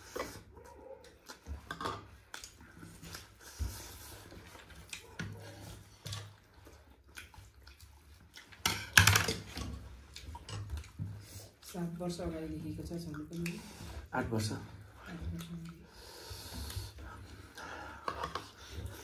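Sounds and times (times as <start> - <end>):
dishes and cutlery clinking: 8.6 - 10.9.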